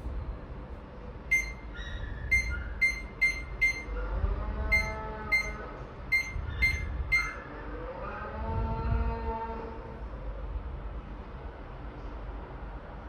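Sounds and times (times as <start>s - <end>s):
washing machine button beeps: 1.3s - 4.0s, 4.7s - 7.4s.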